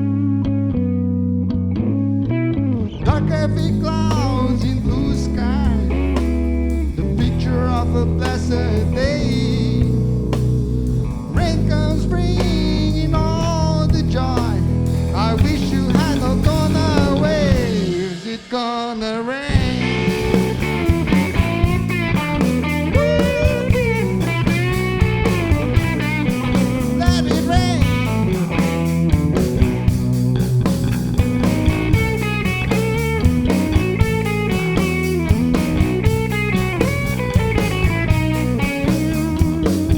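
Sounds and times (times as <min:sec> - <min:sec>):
lead guitar bending notes: 0:00.0 - 0:18.5, 0:19.6 - 0:39.9
sustained bass: 0:00.0 - 0:18.8, 0:19.5 - 0:39.9
drum hits: 0:19.6 - 0:39.9.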